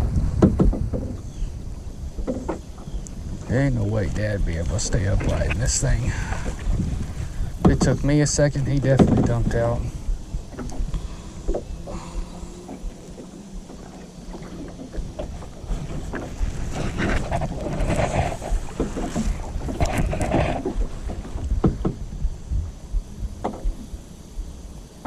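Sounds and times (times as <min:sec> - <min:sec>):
paddle strokes splashing: 0:00.0 - 0:22.6
wind rumble on microphone: 0:00.0 - 0:25.0
sharp knocks: 0:00.4 - 0:01.2, 0:08.9 - 0:09.5, 0:16.8 - 0:22.0, 0:23.4 - 0:23.8.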